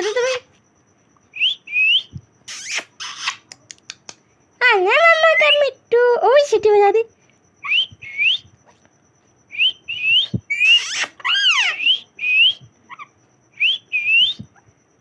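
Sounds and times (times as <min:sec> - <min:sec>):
parrot whistling: 0:01.4 - 0:03.4, 0:07.6 - 0:08.4, 0:09.5 - 0:14.5
harsh parrot call: 0:01.4 - 0:03.5, 0:09.6 - 0:14.4.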